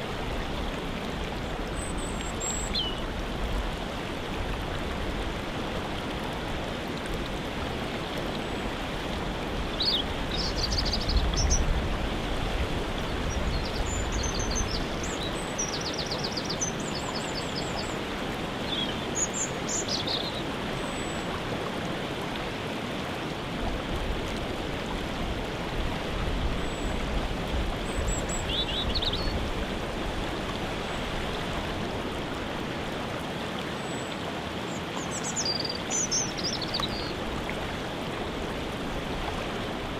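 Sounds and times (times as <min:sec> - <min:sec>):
waterfall rushing: 0:00.0 - 0:39.9
small birds chirping: 0:35.1 - 0:37.2.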